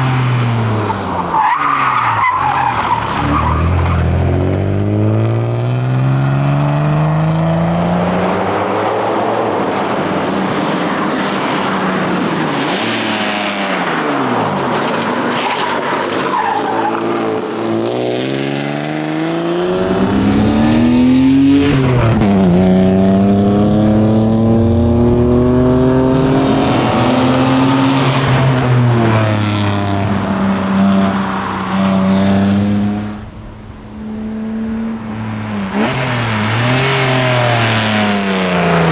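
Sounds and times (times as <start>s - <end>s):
car engine revving: 2.5s - 38.9s.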